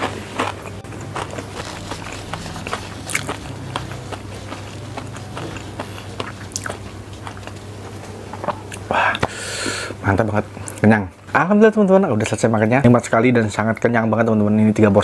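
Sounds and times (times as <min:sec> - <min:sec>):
chewing with wet clicks and smacks: 0:00.0 - 0:07.7
steady low hum: 0:00.0 - 0:15.0.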